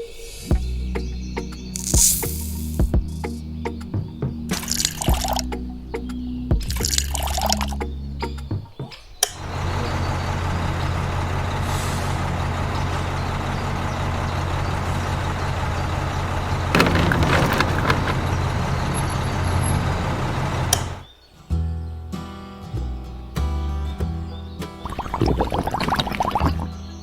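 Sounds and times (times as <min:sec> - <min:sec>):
rattling: 0:16.7 - 0:19.4.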